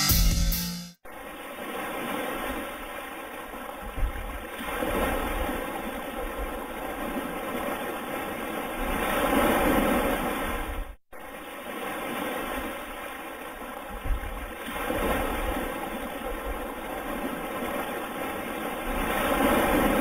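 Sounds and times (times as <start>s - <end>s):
wind rumbling on microphone: 14.0s - 15.6s.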